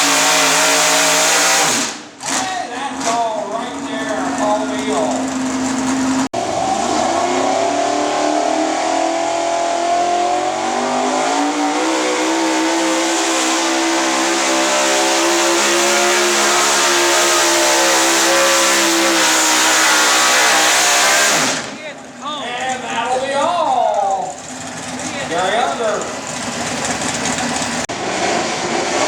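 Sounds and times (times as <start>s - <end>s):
pulling truck engine at full throttle: 0.0s - 29.0s.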